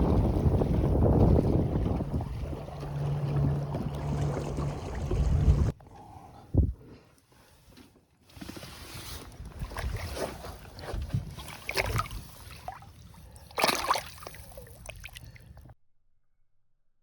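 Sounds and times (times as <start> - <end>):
water sloshing and splashing: 0.0 - 5.8, 8.4 - 15.8.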